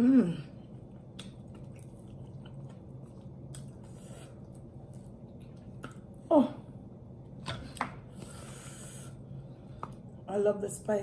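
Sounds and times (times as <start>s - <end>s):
low steady hum: 0.0s - 11.0s
person chewing: 0.6s - 6.2s.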